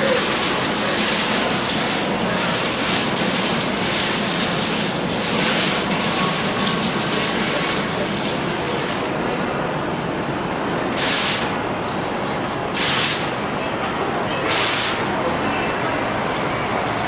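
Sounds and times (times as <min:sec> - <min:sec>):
falling water rushing: 0:00.0 - 0:09.2, 0:14.5 - 0:15.1.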